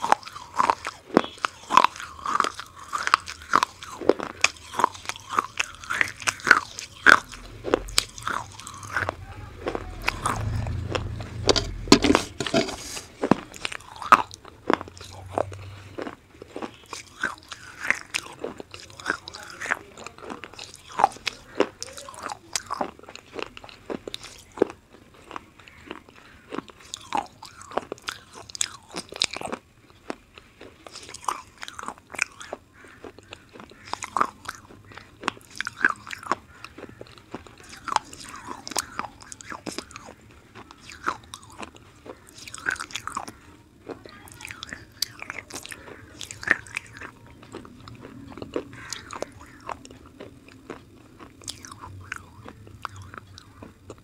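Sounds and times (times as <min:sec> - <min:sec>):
crunching and chewing brittle pencil: 0:00.0 - 0:54.0.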